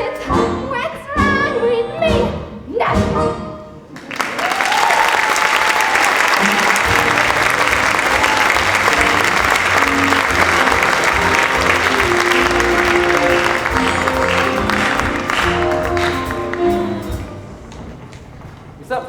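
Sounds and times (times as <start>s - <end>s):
audience applauding: 3.9s - 18.2s
instrumental music: 6.3s - 18.4s.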